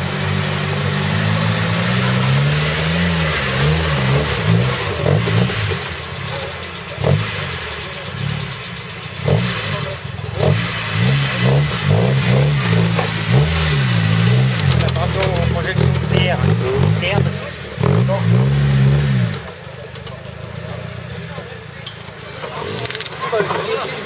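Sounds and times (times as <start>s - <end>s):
off-road vehicle engine revving: 0.0s - 24.0s.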